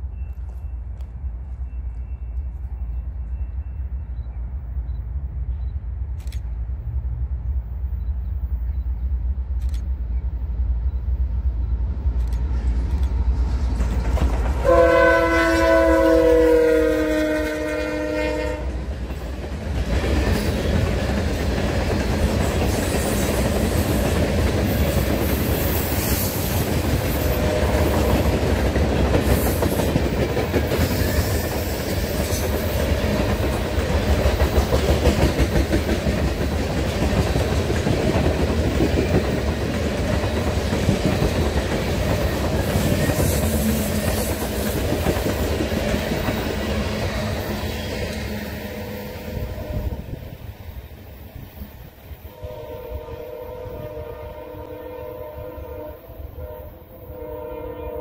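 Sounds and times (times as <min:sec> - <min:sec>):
steel wheels rumbling on rail: 0:06.4 - 0:58.0
rapid clicking of train trucks: 0:10.9 - 0:14.7, 0:18.8 - 0:48.5.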